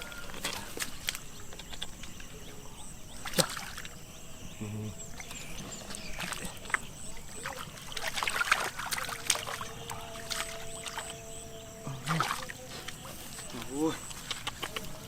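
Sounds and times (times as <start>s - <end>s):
water splashing by hand: 3.2s - 4.0s, 5.1s - 15.0s.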